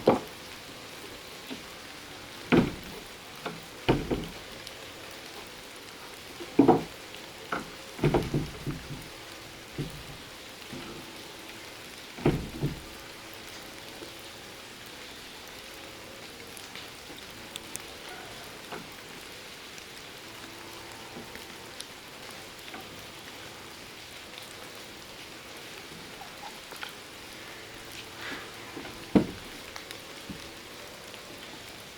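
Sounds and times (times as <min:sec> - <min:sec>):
rain pattering: 0:00.0 - 0:31.9
sharp knocks: 0:02.5 - 0:04.4, 0:06.5 - 0:06.9, 0:07.6 - 0:10.1, 0:12.2 - 0:12.9, 0:28.8 - 0:29.5.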